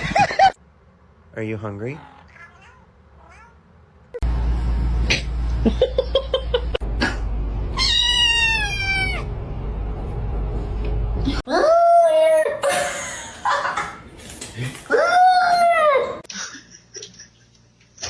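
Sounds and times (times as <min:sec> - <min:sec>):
cat meowing: 0:02.2 - 0:03.6, 0:07.8 - 0:09.3.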